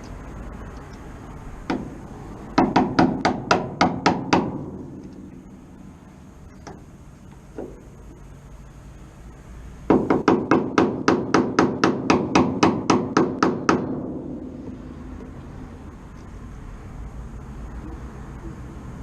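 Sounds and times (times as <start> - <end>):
hammer striking chisel on metal: 9.9 - 14.1.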